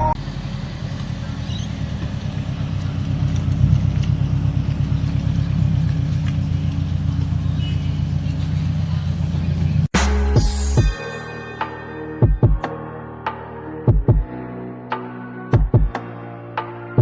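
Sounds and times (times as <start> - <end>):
car engine running: 0.0 - 10.9.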